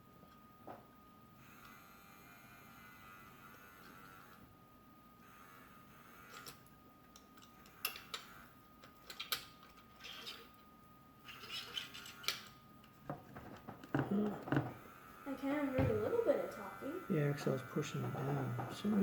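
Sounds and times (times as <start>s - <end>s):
toy mechanism clicks and scrapes: 5.3s - 10.6s, 11.2s - 12.6s.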